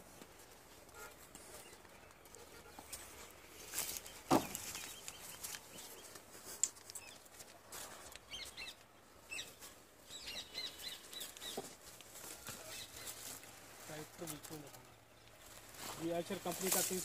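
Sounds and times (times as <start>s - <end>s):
birds chirping: 1.4s - 17.0s.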